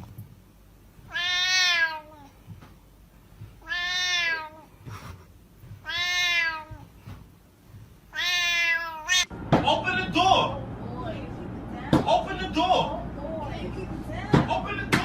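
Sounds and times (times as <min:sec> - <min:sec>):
cat meowing: 0:01.0 - 0:02.4, 0:03.5 - 0:04.7, 0:05.8 - 0:07.0, 0:08.1 - 0:09.3.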